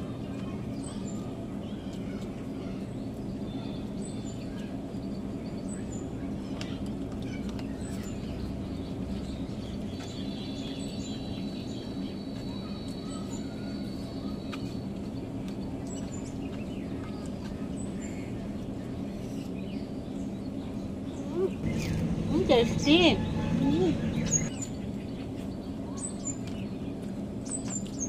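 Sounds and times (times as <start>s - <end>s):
small birds chirping: 0.2s - 28.0s
steady low hum: 19.8s - 25.8s.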